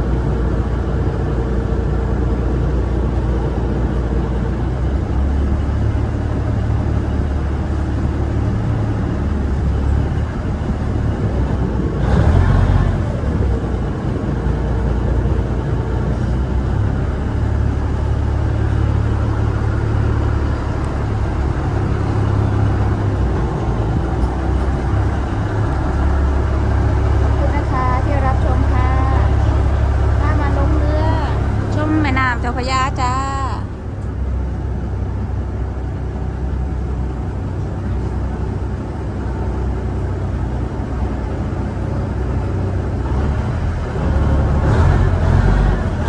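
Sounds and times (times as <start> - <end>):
ferry engine rumbling: 0.0 - 46.0.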